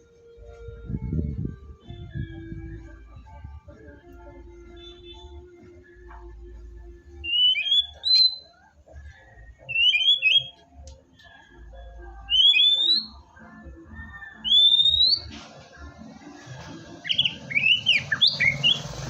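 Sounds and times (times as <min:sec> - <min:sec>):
bird singing whistled phrases: 0:07.2 - 0:08.6, 0:09.6 - 0:10.6, 0:12.3 - 0:13.3, 0:14.2 - 0:15.3, 0:17.0 - 0:18.9.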